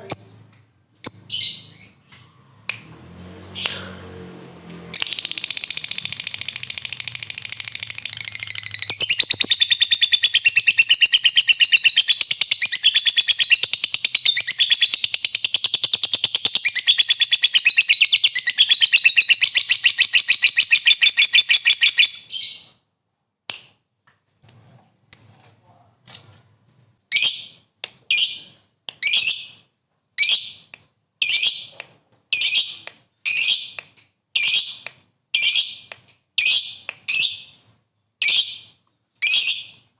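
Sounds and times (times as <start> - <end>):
lovebird rapid shrill chatter: 5.0 - 21.9.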